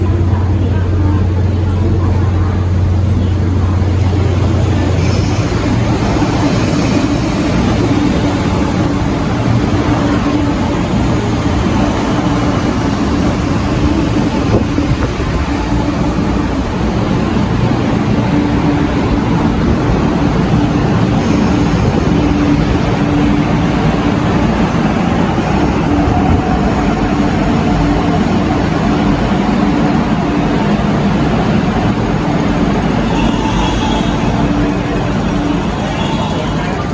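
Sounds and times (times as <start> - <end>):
train wheels rumbling: 0.0 - 36.9.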